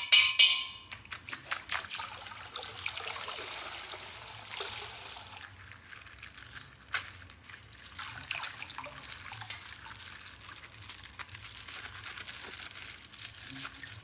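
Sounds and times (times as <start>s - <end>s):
plastic packaging crackling: 8.6s - 14.0s.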